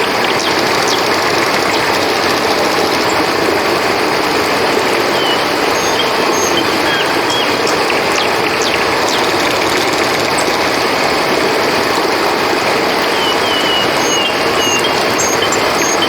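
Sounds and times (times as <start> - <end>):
river flowing: 0.0 - 16.0.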